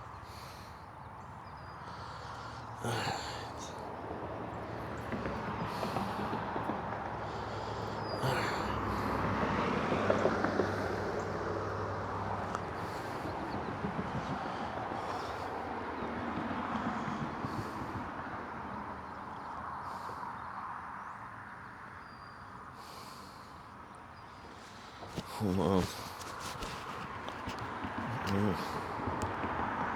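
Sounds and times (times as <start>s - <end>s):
vehicle passing: 2.0s - 19.0s.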